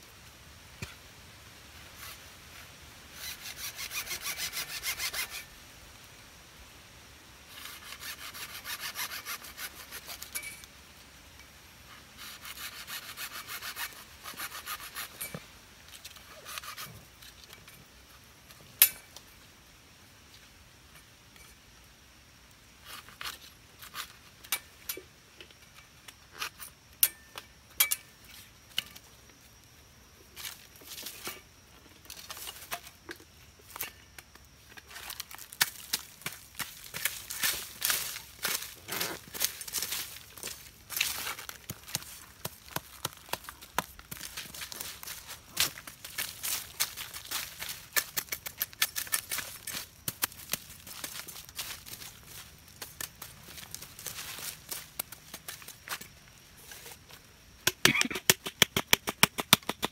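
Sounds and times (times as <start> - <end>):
hand saw strokes: 3.1 - 5.5, 7.5 - 10.5, 12.2 - 15.4, 16.2 - 17.0.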